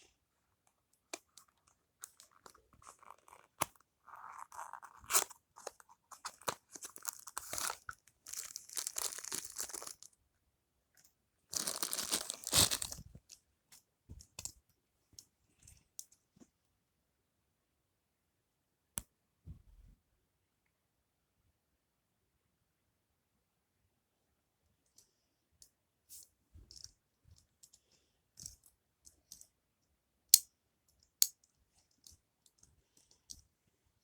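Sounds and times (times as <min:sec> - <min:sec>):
packaging rustling and scraping: 0:02.1 - 0:10.1, 0:11.6 - 0:13.2.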